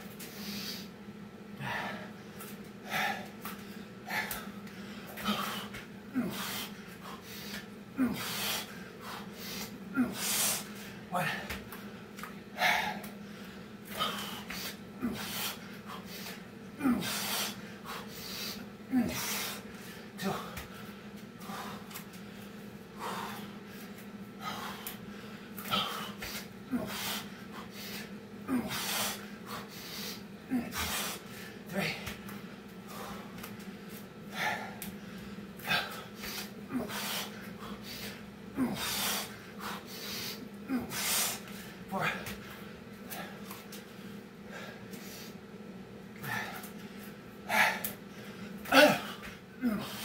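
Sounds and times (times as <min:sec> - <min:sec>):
steady low hum: 0:00.0 - 0:50.0
man breathing heavily: 0:00.1 - 0:50.0
short falling grunts: 0:48.7 - 0:50.0.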